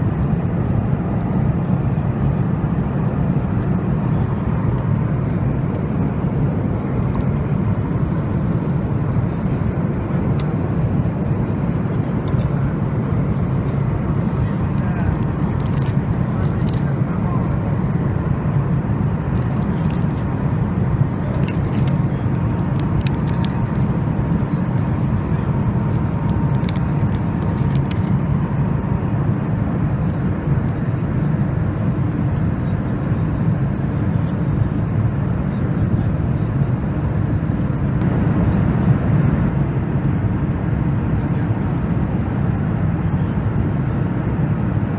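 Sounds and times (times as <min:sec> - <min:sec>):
airliner cabin rumble: 0:00.0 - 0:44.9.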